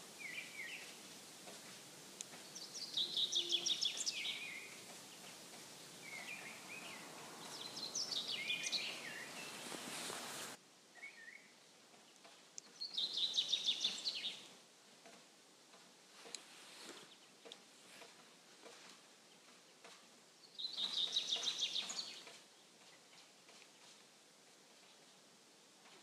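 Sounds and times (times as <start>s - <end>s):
songbird chirping phrase: 0.0s - 14.6s, 17.0s - 24.0s
faint background hiss: 0.0s - 26.0s
soft short bird calls: 2.4s - 11.6s.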